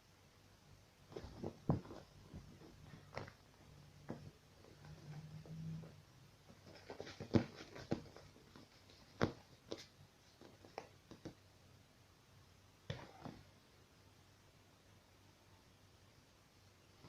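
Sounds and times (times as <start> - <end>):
kitten playing taps and knocks: 1.1 - 5.4, 6.5 - 11.4.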